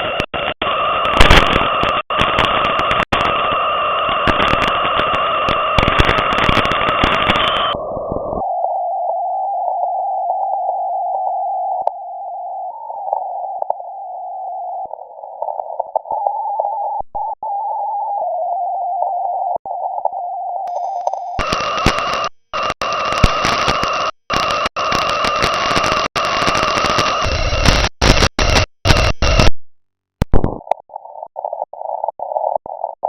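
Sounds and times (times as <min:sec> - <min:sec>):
radio band hiss: 0:00.0 - 0:08.5, 0:20.7 - 0:29.6, 0:30.2 - 0:33.0.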